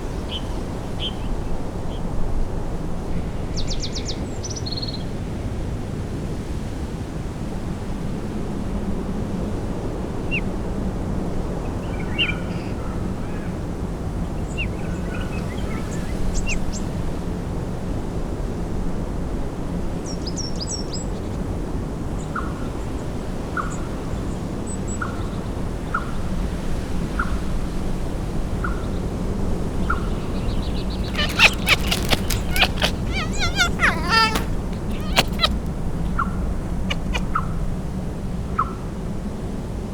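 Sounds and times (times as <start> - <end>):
sharp clicking calls: 30.3 - 36.2, 36.9 - 37.3
bird chirps: 30.6 - 35.6
rushing outdoor noise: 30.7 - 35.8.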